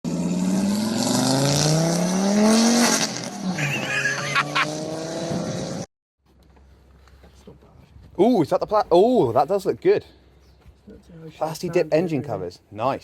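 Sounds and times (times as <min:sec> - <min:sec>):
car engine accelerating hard: 0:00.1 - 0:05.9.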